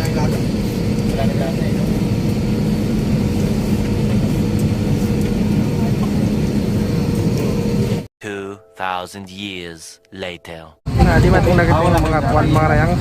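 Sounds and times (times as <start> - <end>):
airliner engine drone in cabin: 0.0 - 8.1.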